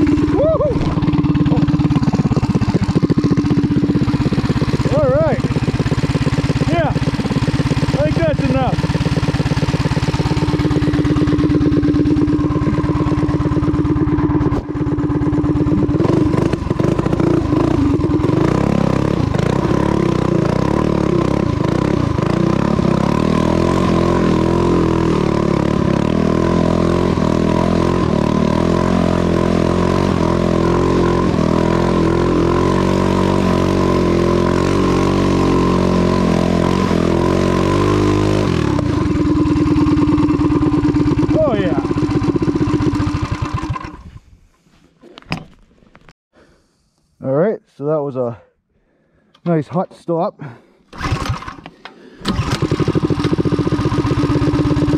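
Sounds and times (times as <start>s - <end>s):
small motorbike engine revving: 0.0s - 44.2s, 50.9s - 54.9s.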